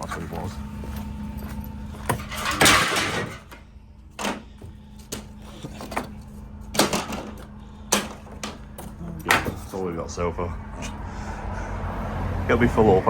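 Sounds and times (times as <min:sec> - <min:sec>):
steady low hum: 0:00.0 - 0:12.4
scrap metal knocks and clanks: 0:00.3 - 0:09.9.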